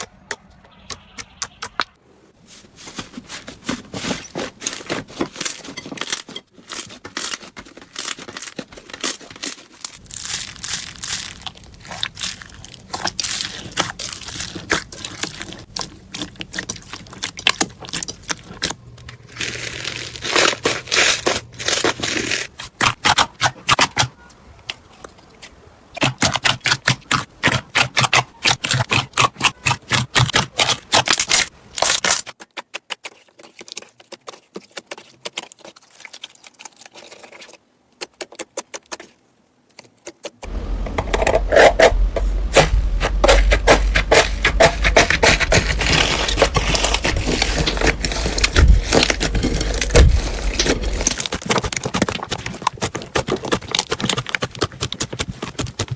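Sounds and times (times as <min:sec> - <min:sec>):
slime crackling and popping: 0:06.1 - 0:24.0, 0:42.5 - 0:55.9.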